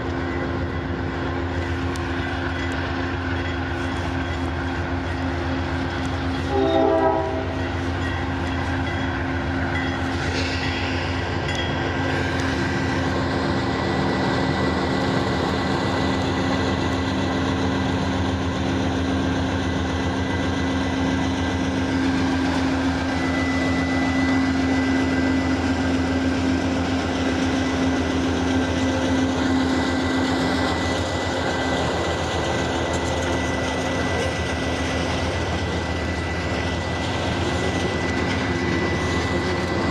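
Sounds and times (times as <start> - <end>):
diesel train running: 0.0 - 39.9
train horn blast: 6.4 - 7.6.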